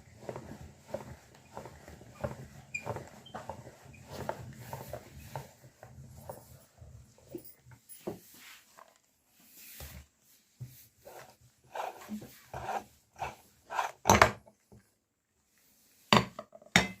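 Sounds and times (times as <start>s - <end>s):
meat grinder scraping and knocking: 0.1s - 6.3s.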